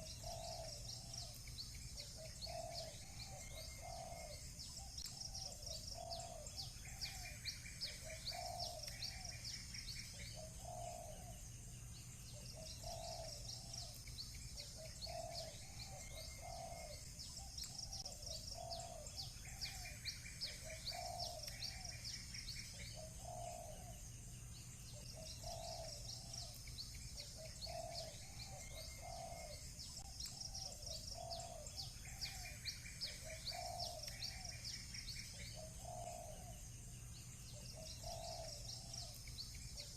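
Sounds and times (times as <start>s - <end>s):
doves cooing: 0.0s - 11.5s, 12.3s - 24.1s, 24.9s - 36.7s, 37.5s - 39.9s
small birds chirping: 0.0s - 39.9s.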